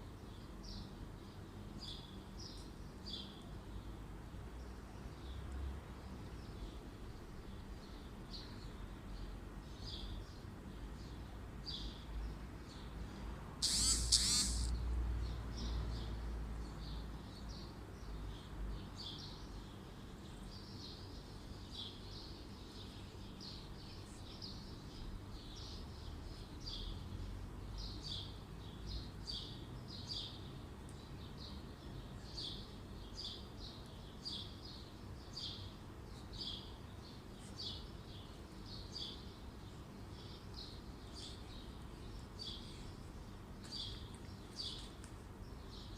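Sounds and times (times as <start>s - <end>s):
loud hiss: 13.6s - 14.7s
small bird chirping: 13.6s - 14.8s, 31.5s - 45.9s.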